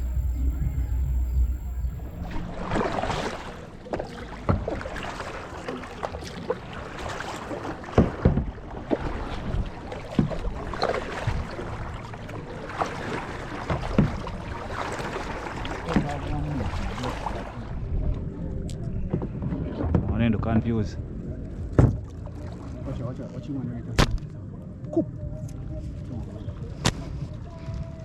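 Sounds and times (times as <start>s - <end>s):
water sloshing around boat: 0.0s - 28.0s.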